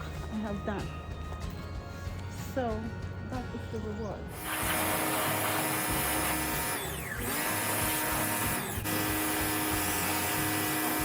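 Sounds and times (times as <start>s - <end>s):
pressure washer spraying water: 4.3s - 11.0s.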